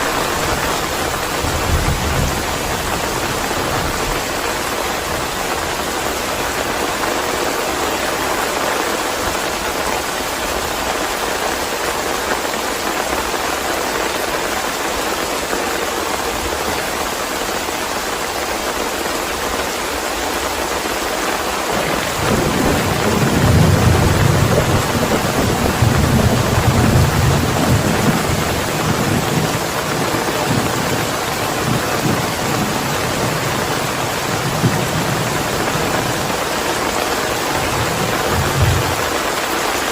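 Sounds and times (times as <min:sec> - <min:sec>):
low roll of thunder: 0:00.0 - 0:04.4, 0:21.7 - 0:36.4, 0:37.5 - 0:39.2
rain hissing: 0:00.0 - 0:39.9.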